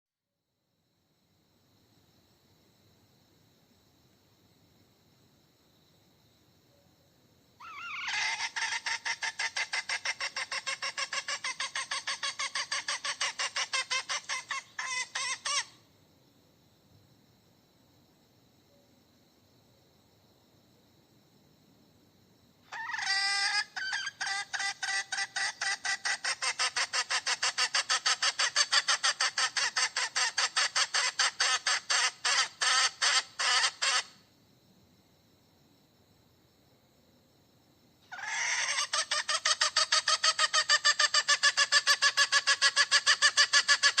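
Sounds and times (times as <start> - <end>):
hen cackling: 7.6 - 15.8, 22.7 - 34.2, 38.1 - 44.0.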